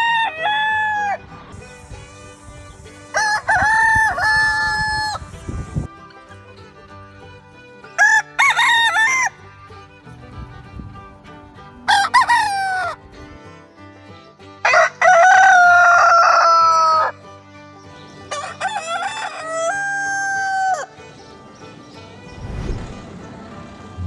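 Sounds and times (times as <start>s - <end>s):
rooster crowing: 0.0s - 1.2s, 3.2s - 5.2s, 14.6s - 17.1s, 18.3s - 20.9s.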